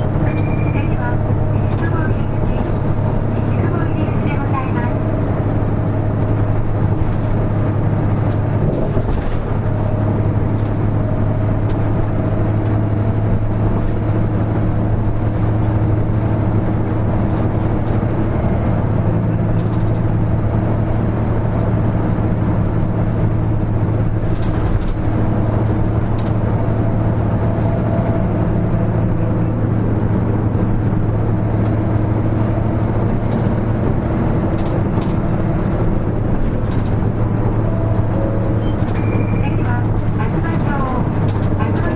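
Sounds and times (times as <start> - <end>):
bus diesel engine droning: 0.0 - 41.9
brief clicks and rattles: 24.3 - 25.0, 34.6 - 37.0, 38.6 - 41.9.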